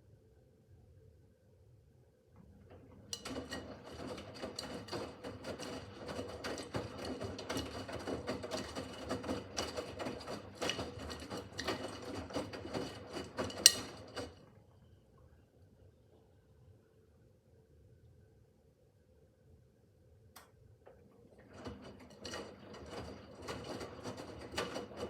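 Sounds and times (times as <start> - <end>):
washing machine motor whine: 2.5 - 14.4, 21.3 - 25.0
laundry and water tumbling in drum: 2.7 - 14.4, 21.4 - 25.0.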